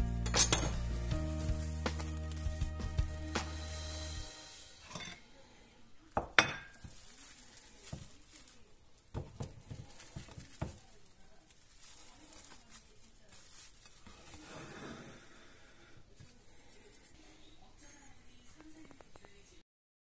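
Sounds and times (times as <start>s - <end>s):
plate knocking and clinking on board: 4.8s - 5.2s, 6.2s - 6.8s.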